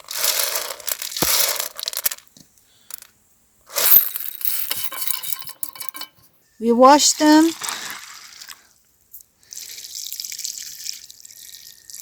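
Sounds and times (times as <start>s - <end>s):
dried beans poured rattling: 0.0s - 3.1s, 3.7s - 6.1s, 7.4s - 8.7s.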